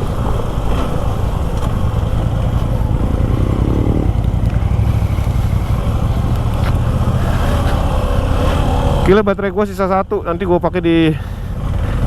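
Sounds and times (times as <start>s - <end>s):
wind rush on microphone: 0.0s - 9.3s
motorcycle engine rumble: 0.0s - 12.0s.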